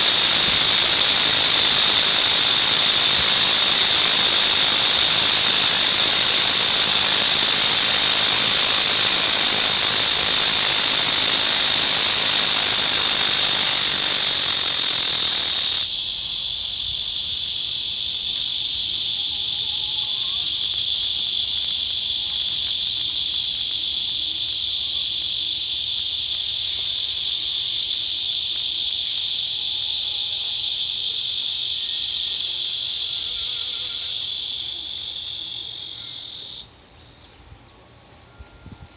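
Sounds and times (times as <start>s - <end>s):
cicadas buzzing: 0.0s - 37.4s.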